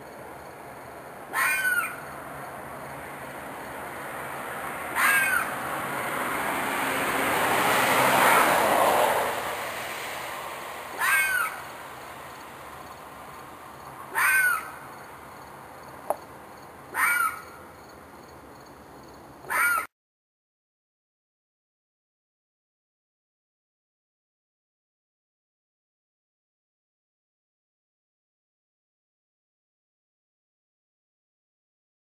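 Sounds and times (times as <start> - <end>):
rushing noise: 0.0 - 15.8
animal screaming: 1.3 - 2.0, 4.9 - 5.6, 8.2 - 8.7, 11.0 - 11.7, 14.1 - 14.8, 16.9 - 17.5, 19.5 - 19.9.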